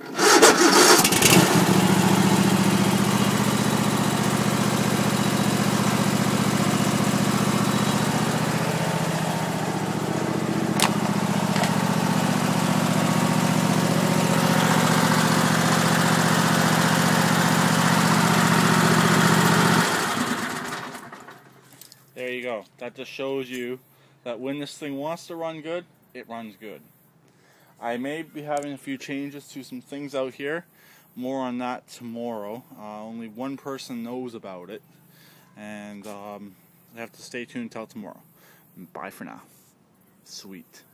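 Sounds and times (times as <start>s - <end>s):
lawn tractor engine running: 0.0s - 21.6s
sharp click: 10.8s - 11.8s.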